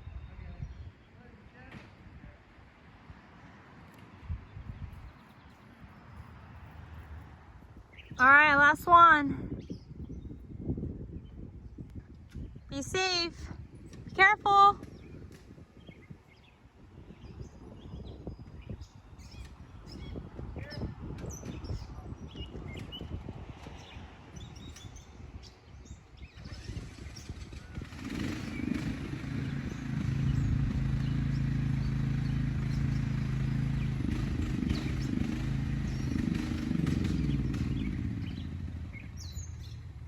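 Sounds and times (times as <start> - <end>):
birds chirping: 3.8 - 40.0
chainsaw engine at high revs: 26.4 - 38.4
low rumble: 28.7 - 36.3.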